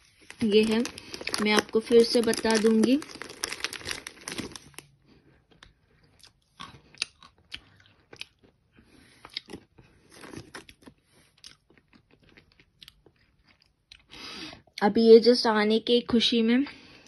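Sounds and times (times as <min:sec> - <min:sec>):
plastic bag rustling: 0:00.0 - 0:04.9
crunchy chewing: 0:05.5 - 0:14.1.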